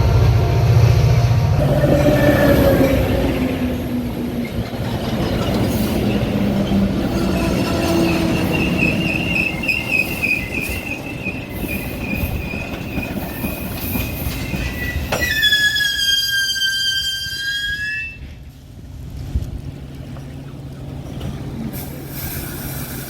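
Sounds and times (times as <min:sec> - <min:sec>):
train rumbling on rails: 0:00.0 - 0:23.0
wavering wheel squeal: 0:07.2 - 0:18.3
loud falling wheel squeal: 0:08.0 - 0:18.2.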